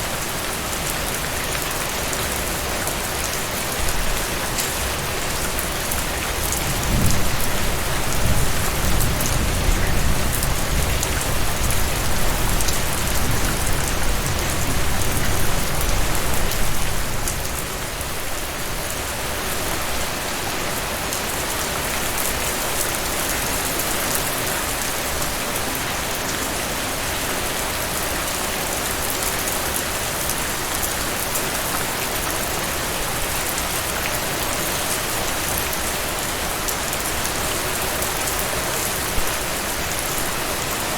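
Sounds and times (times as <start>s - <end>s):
low rumble of thunder: 6.6s - 17.0s.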